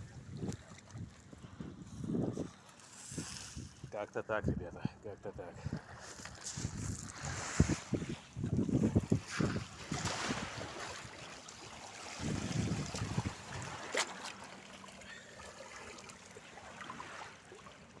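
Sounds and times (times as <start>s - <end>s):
sea water splashing: 0.0s - 1.8s, 5.7s - 18.0s
wind buffeting microphone: 0.0s - 10.8s, 12.2s - 13.8s.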